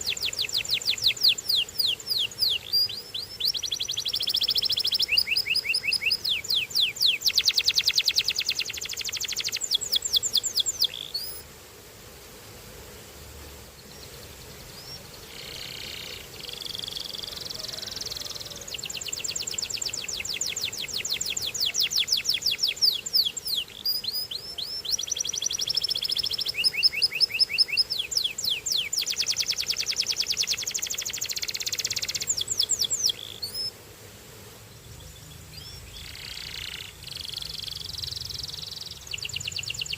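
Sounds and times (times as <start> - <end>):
canary singing trills: 0.0 - 11.4, 13.9 - 33.7, 34.9 - 39.9.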